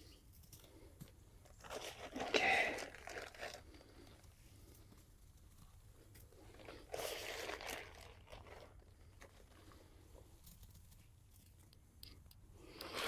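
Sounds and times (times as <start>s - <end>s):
bag of clay rustling: 1.5s - 4.3s, 6.4s - 10.3s.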